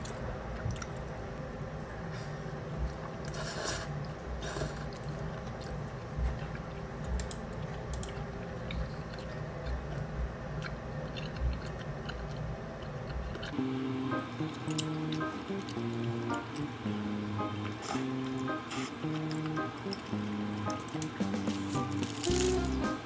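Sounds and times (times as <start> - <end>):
person chewing: 2.9 - 13.6, 18.7 - 20.2.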